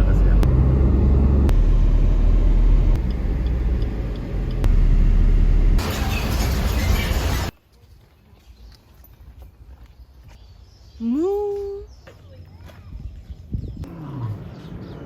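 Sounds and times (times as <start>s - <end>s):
vehicle rumbling: 0.0s - 7.6s.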